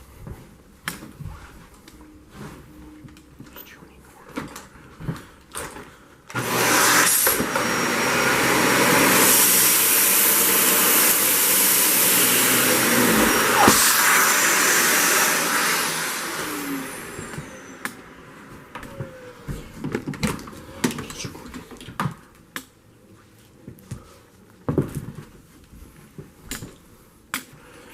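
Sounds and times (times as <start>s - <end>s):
vacuum motor spinning down: 6.3s - 19.7s
vacuum cleaner running: 6.3s - 21.2s.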